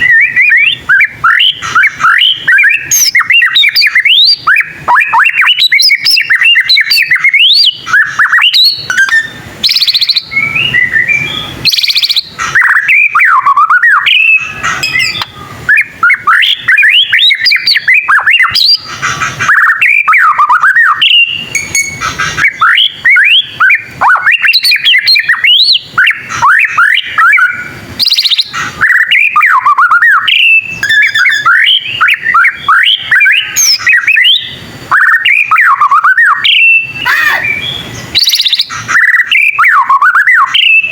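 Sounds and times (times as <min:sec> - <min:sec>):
bird singing whistled notes: 0:00.0 - 0:18.9, 0:19.5 - 0:40.9
harsh rasping bird notes: 0:14.0 - 0:15.6, 0:21.0 - 0:24.0, 0:30.4 - 0:32.3.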